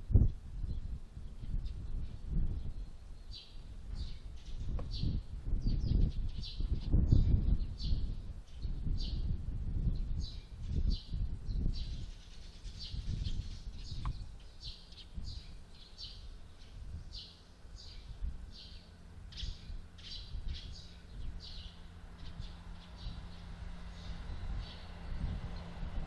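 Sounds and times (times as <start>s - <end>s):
small birds chirping: 0.1s - 26.0s.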